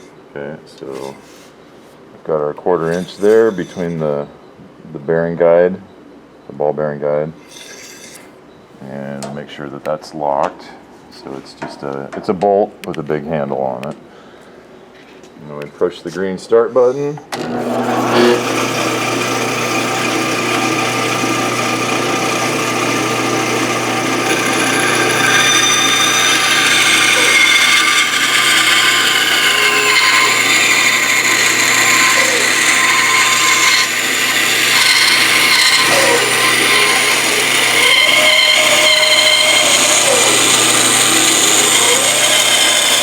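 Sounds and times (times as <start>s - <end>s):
bandsaw cutting wood: 2.8s - 4.0s, 17.3s - 43.0s.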